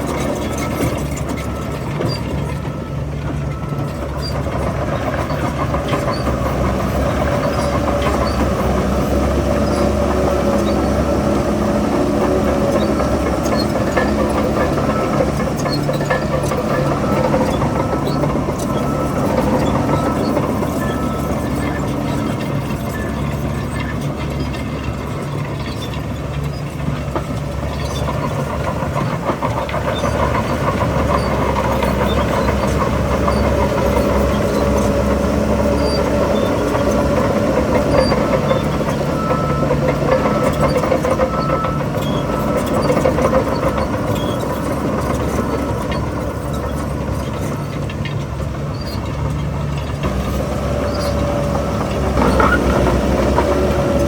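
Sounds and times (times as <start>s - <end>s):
diesel machinery engine: 0.0s - 54.0s.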